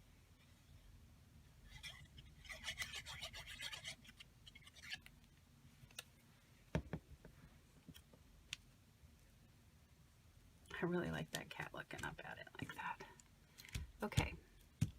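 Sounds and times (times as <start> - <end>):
paper rubbing and scratching: 1.7 - 5.0.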